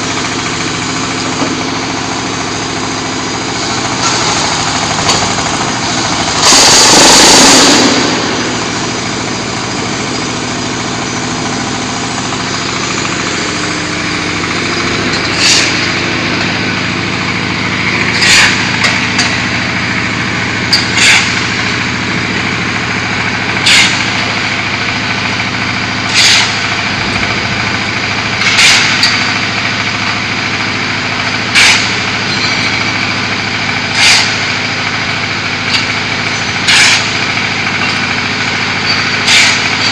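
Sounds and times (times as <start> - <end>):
diesel engine running: 0.0 - 39.9
hydraulic hissing bursts: 12.9 - 16.9.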